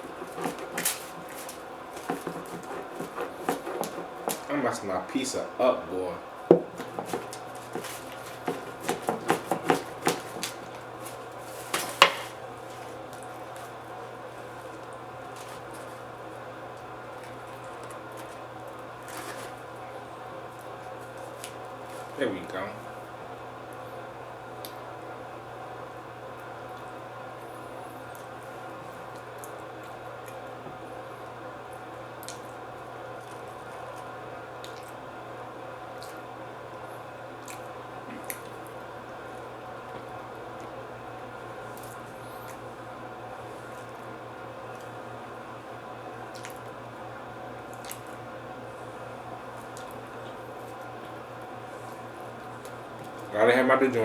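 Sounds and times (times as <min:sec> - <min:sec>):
faint steady hum: 0:00.0 - 0:54.0
person chewing food: 0:06.6 - 0:16.1
cutlery tapping on a plate: 0:11.9 - 0:12.3.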